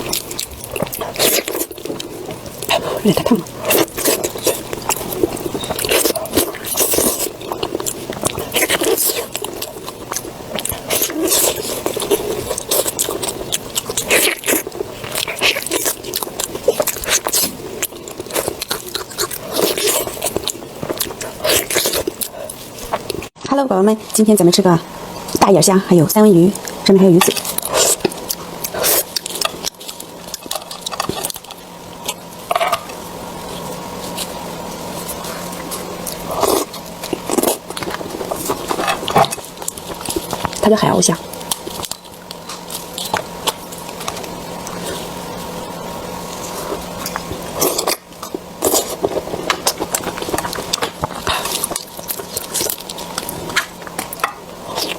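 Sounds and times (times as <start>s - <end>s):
wet chewing and lip-smacking: 0.0s - 23.3s, 26.5s - 54.9s
close-up eating sounds: 0.0s - 54.9s
faint steady hum: 0.0s - 54.9s.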